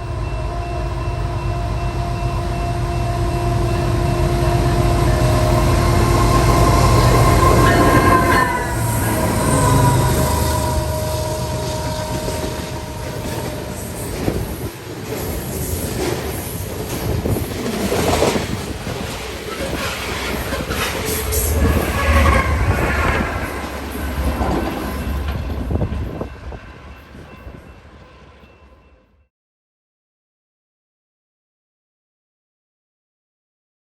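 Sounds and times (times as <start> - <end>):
train wheel squeal: 0.0 - 29.2
train wheels rolling on rails: 2.3 - 28.7.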